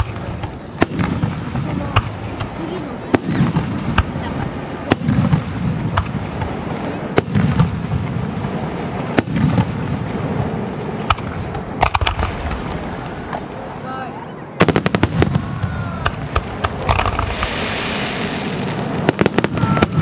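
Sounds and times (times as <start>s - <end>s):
firework shells bursting: 14.6s - 20.0s.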